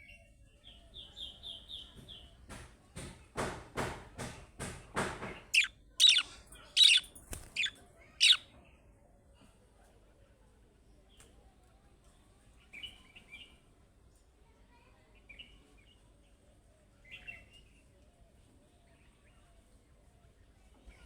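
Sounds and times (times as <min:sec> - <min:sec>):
budgerigar chirping: 0:05.5 - 0:08.4.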